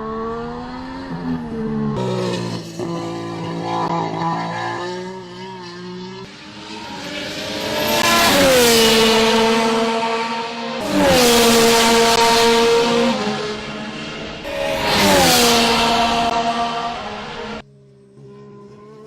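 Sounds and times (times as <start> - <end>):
racing car engine passing by: 0.0 - 19.0.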